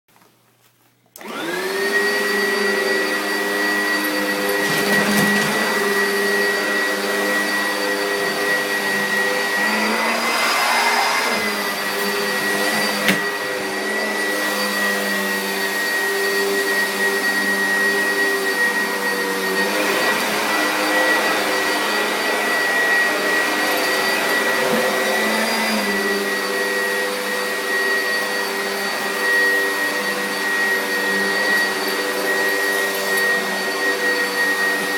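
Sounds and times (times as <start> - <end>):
vacuum cleaner motor whining: 1.2 - 34.9.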